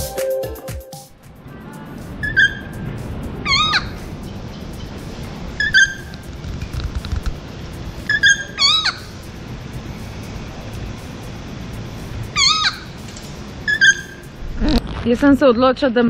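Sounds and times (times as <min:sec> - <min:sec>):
bird calling: 0:02.2 - 0:02.8, 0:03.4 - 0:06.3, 0:08.0 - 0:09.2, 0:12.3 - 0:14.4.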